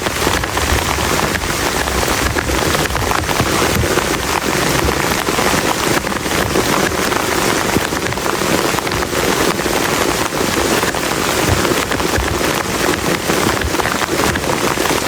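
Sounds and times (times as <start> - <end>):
heavy rain on plastic tarp: 0.0 - 15.0.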